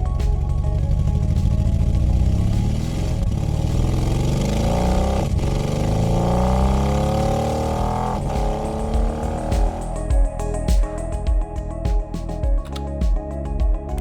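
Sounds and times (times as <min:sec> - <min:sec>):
synthesized engine sound revving: 0:00.9 - 0:10.1.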